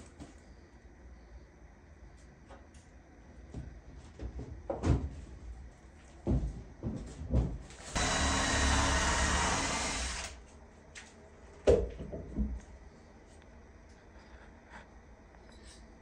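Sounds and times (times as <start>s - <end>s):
power tool running: 7.8s - 10.4s.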